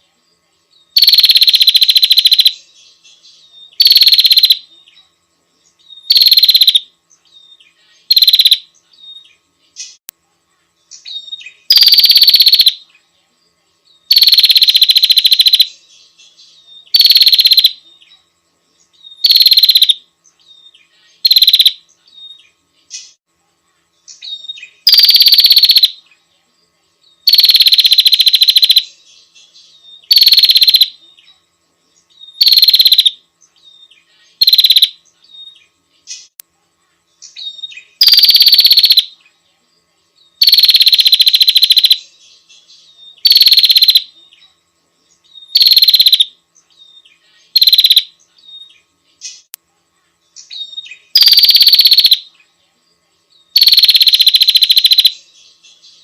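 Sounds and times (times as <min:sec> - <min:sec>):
bird loud rapid trills: 0:01.0 - 0:02.6, 0:03.7 - 0:04.6, 0:06.0 - 0:06.8, 0:08.1 - 0:08.7, 0:11.1 - 0:12.8, 0:14.1 - 0:15.8, 0:16.9 - 0:17.8, 0:19.2 - 0:20.0, 0:21.2 - 0:21.8, 0:24.2 - 0:26.0, 0:27.2 - 0:28.9, 0:30.0 - 0:31.0, 0:32.3 - 0:33.2, 0:34.4 - 0:35.0, 0:37.4 - 0:39.1, 0:40.4 - 0:42.0, 0:43.2 - 0:44.1, 0:45.4 - 0:46.3, 0:47.5 - 0:48.2, 0:50.5 - 0:52.3, 0:53.5 - 0:55.2.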